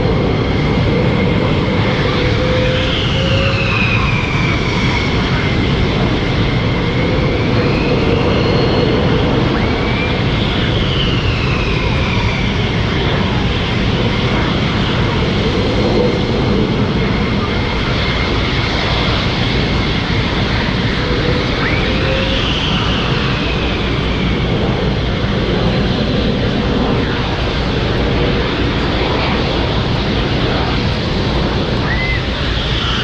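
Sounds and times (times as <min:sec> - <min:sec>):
aircraft engine overhead: 0:00.0 - 0:33.0.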